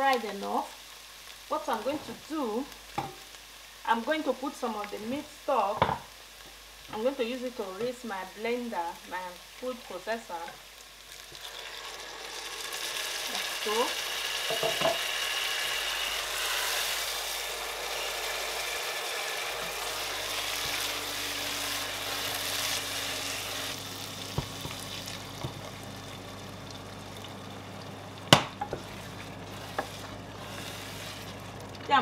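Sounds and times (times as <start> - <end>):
paste sizzling in oil: 0.0 - 32.0
wooden spoon scraping pot: 28.6 - 31.6.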